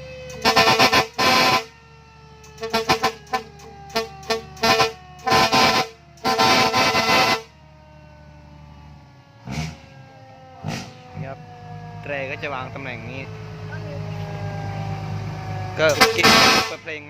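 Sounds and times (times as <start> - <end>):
truck air horn blasts: 0.3 - 1.8, 2.5 - 7.6, 15.8 - 17.0.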